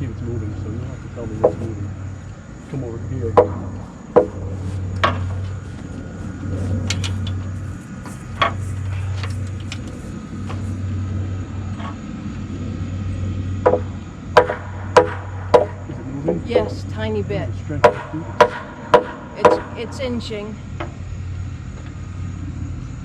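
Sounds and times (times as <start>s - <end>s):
tractor engine idling: 0.0s - 22.0s
hammer blows on wood: 3.3s - 5.5s, 13.7s - 15.9s, 17.8s - 19.8s.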